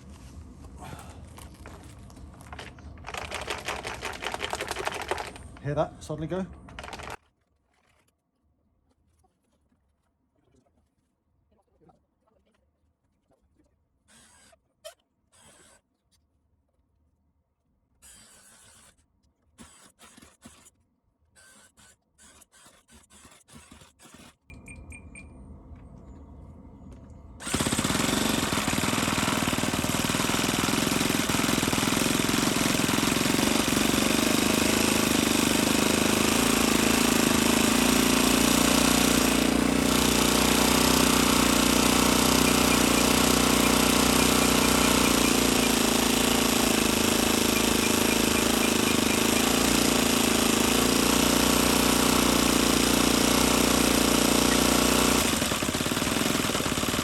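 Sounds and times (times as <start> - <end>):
model glow engine running: 2.6 - 7.2, 27.4 - 57.0.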